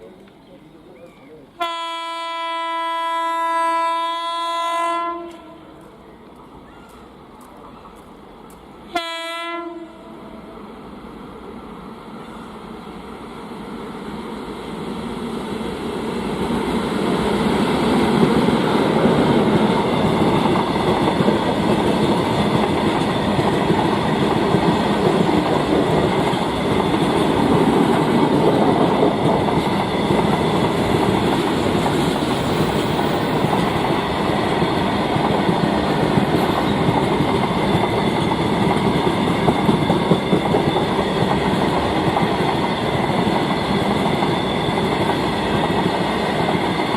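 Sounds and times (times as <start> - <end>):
freight train wheels clattering: 17.0 - 46.9.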